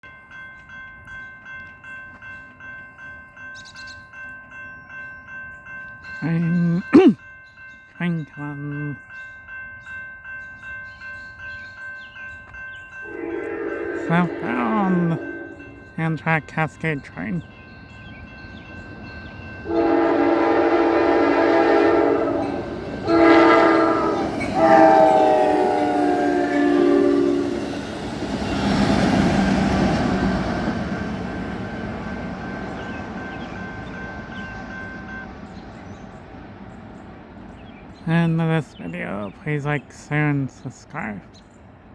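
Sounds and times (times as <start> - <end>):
railroad crossing bell ringing: 0.0 - 39.7
train horn blasts: 13.0 - 15.8, 19.6 - 27.6.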